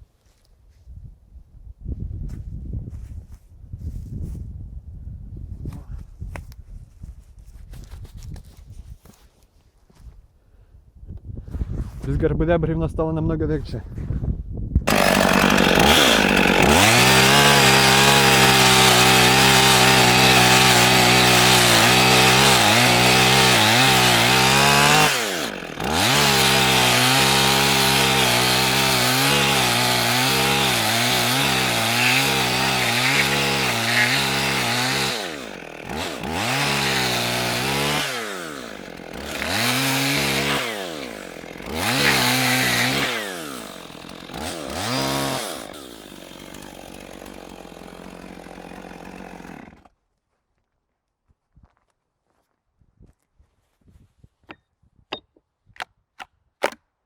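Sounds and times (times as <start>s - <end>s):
chainsaw cutting log: 14.8s - 50.0s.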